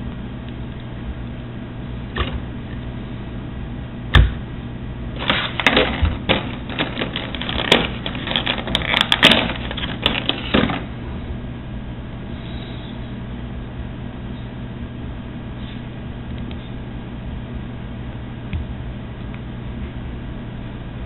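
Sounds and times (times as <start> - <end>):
steady low hum: 0.0 - 21.0
plastic clicks and crackles: 5.2 - 10.8.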